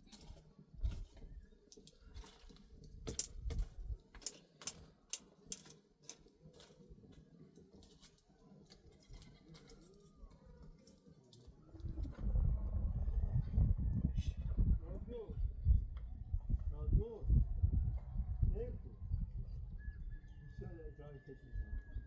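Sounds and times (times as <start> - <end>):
low rumble: 11.9 - 19.8.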